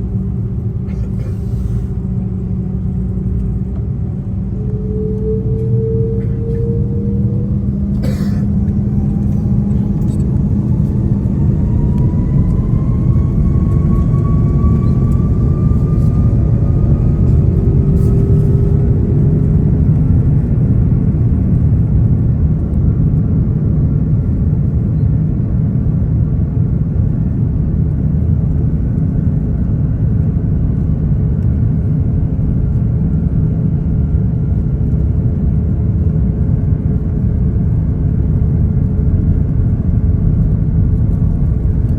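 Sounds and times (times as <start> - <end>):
jet engines spooling up: 3.8 - 21.8.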